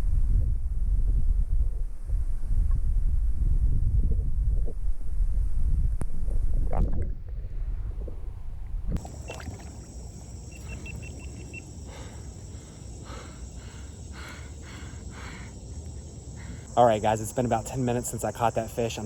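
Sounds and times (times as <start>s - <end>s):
wind rumble on microphone: 0.0s - 14.4s
creek water running: 9.0s - 19.0s
crickets chirping: 9.0s - 19.0s
high insect buzz: 9.0s - 19.0s.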